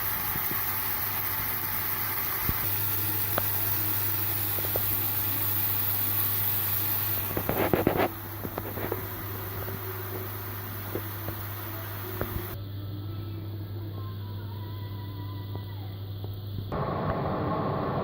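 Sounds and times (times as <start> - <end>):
chicken frying in oil: 0.0 - 12.6.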